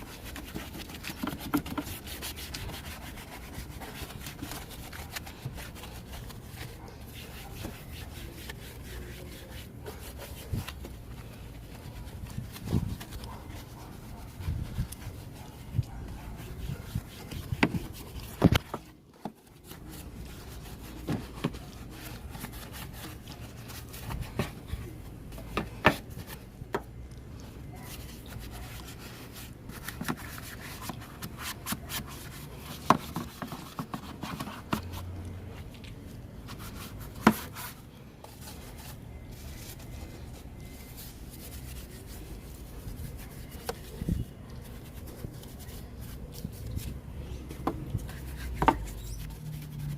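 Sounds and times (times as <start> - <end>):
hand rubbing and scrubbing: 0.0 - 26.6.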